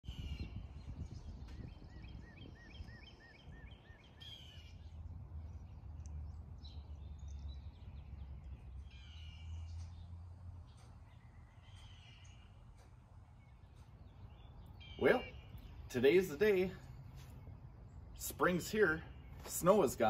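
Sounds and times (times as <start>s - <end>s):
harsh bird calls: 0.0s - 20.0s
songbird whistling: 0.1s - 15.9s
low steady rumble: 0.1s - 19.4s.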